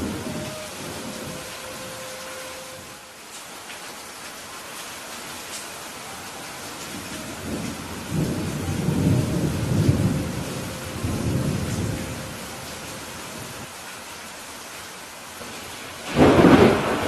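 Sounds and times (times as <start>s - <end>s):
steady rain: 0.0s - 17.0s
rumble of thunder: 6.9s - 13.6s, 16.0s - 17.0s.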